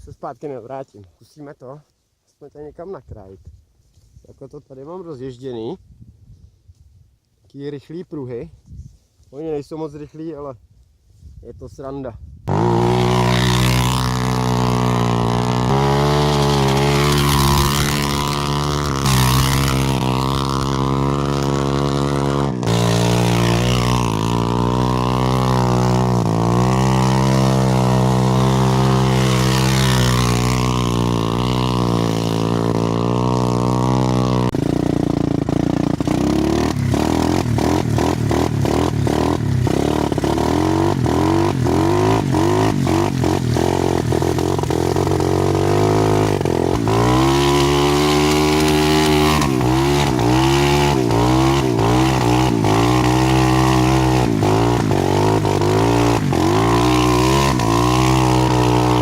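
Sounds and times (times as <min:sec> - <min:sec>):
dirt bike engine revving: 0:12.5 - 0:59.0.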